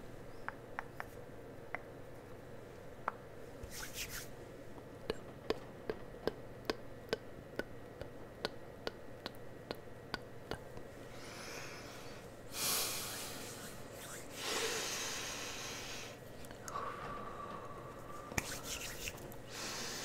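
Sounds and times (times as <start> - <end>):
hissing bursts of air: 12.5 - 16.2.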